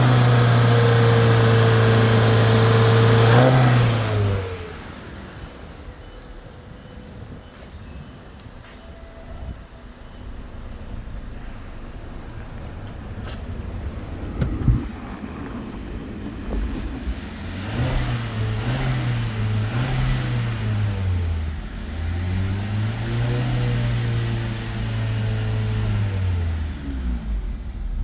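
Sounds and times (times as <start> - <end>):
car engine revving: 0.0 - 6.5, 9.3 - 28.0
sharp thump: 10.4 - 15.2.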